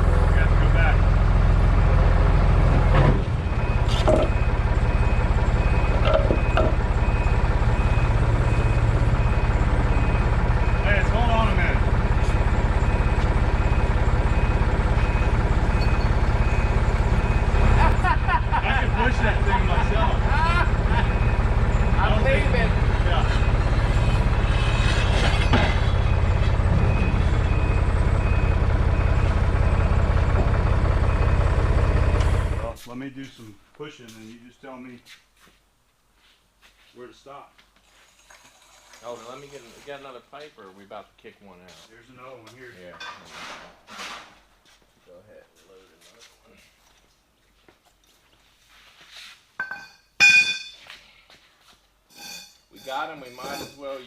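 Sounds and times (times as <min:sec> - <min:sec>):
heavy vehicle engine running: 0:00.0 - 0:32.8
reversing beeper: 0:03.3 - 0:32.7, 0:52.1 - 0:54.0.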